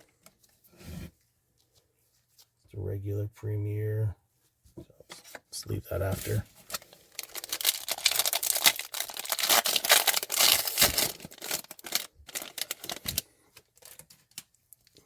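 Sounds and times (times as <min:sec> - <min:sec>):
wrapper crinkling and tearing: 0:06.2 - 0:15.0.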